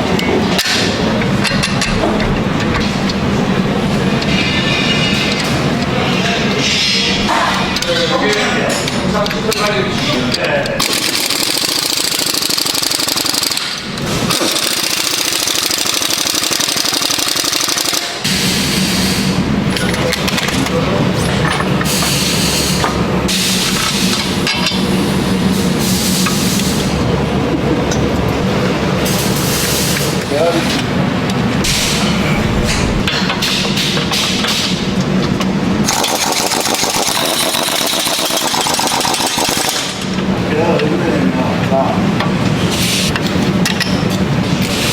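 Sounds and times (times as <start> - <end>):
machinery hum: 10.7 - 44.9
welding arc crackling: 35.8 - 40.1.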